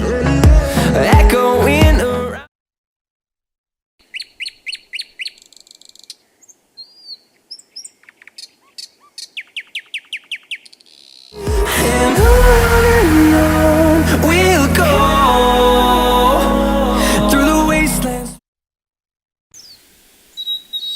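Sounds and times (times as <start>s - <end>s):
songbird chirping: 4.0s - 11.4s, 19.5s - 20.9s.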